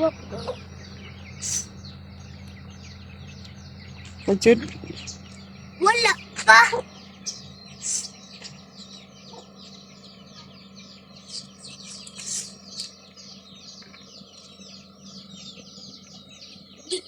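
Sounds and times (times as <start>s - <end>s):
birds chirping: 0.0s - 17.0s
faint low hum: 0.0s - 17.0s.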